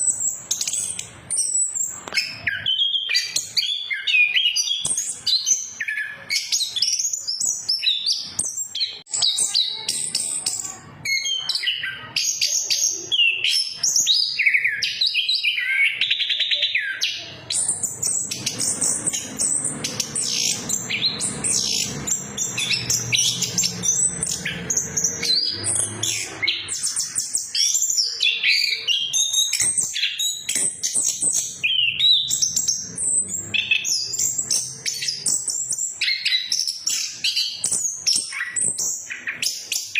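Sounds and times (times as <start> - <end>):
thrush singing: 17.2 - 35.5.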